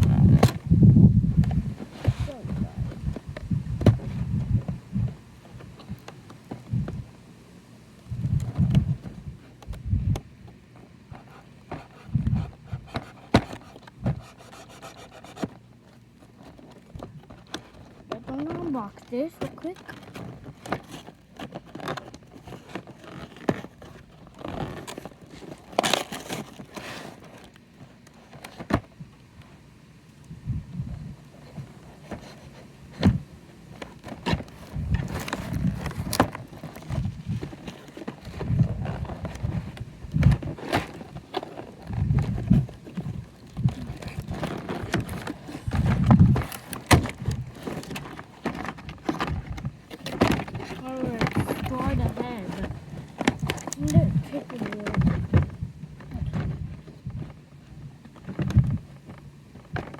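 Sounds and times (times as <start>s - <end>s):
packaging rustling and crinkling: 0.0s - 7.2s, 8.0s - 59.9s
toy packaging being opened: 17.4s - 27.6s, 43.8s - 55.2s
plastic clicks: 40.2s - 56.6s.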